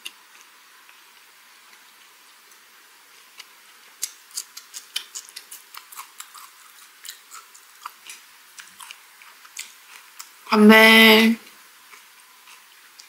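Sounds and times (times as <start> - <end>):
chewing mouth clicks: 3.2 - 10.4, 11.9 - 13.0.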